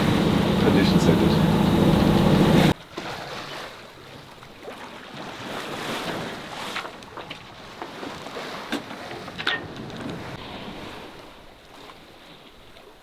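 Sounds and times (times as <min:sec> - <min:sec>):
boat motor drone: 0:00.0 - 0:02.7
water washing along hull: 0:00.0 - 0:13.0.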